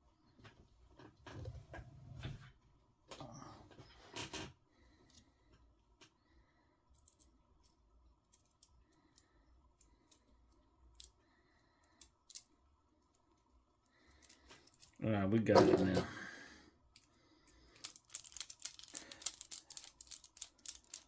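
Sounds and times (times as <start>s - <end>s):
small metal parts clicking: 6.9s - 11.2s, 11.8s - 13.3s, 14.0s - 15.0s, 16.9s - 21.0s
handling noise: 15.5s - 16.3s.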